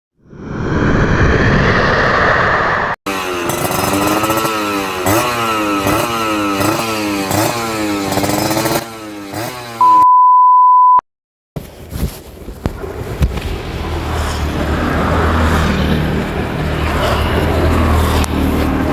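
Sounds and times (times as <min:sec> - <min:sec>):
motorcycle engine revving: 0:02.3 - 0:09.8
steady high beep: 0:09.8 - 0:11.0.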